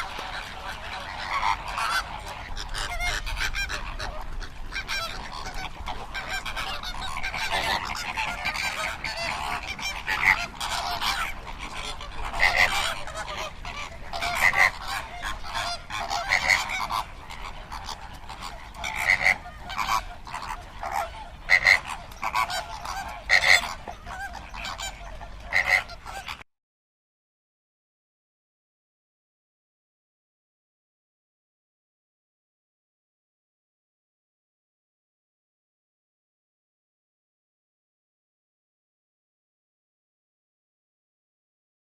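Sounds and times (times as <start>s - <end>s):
flamingos calling: 0.0s - 26.4s
loud bird honks: 0.1s - 26.4s.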